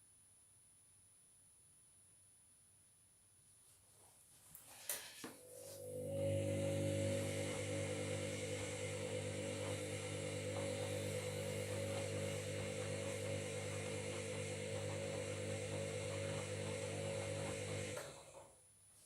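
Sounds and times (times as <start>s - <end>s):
washing machine motor hum: 5.4s - 18.6s.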